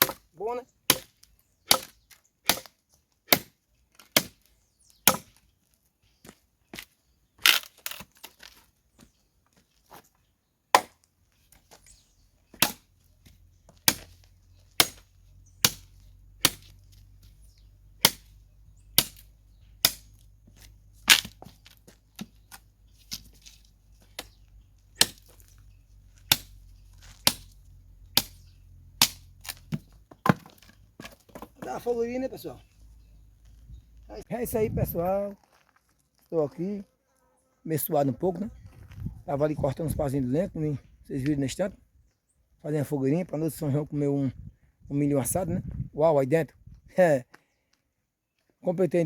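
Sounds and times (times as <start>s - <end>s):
machete chopping sticks: 0.9s - 2.7s, 3.3s - 4.4s, 5.1s - 5.3s, 10.8s - 11.0s, 12.6s - 12.9s, 13.7s - 14.2s, 14.8s - 17.0s, 18.0s - 18.3s, 19.0s - 21.5s, 22.2s - 25.5s, 26.2s - 28.4s, 29.0s - 30.6s.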